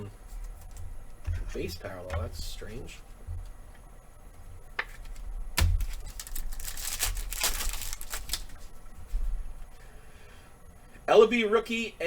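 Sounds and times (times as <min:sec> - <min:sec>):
clicks and crinkling: 0:04.8 - 0:08.7
trading cards being handled: 0:05.8 - 0:08.7.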